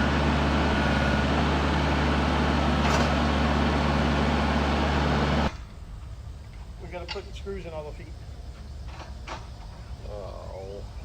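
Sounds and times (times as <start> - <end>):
sawmill engine running: 0.0 - 5.6.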